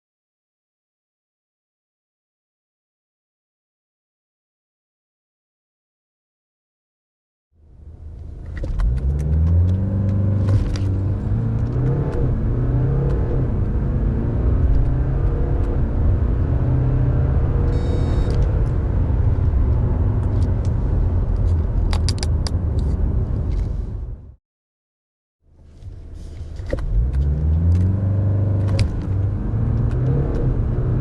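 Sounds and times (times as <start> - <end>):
diesel car engine accelerating: 7.6 - 24.4, 25.5 - 31.0.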